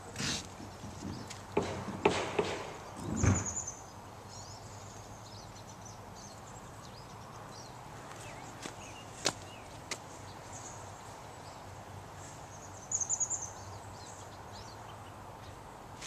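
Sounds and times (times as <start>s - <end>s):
sharp knocks: 0.7s - 3.6s.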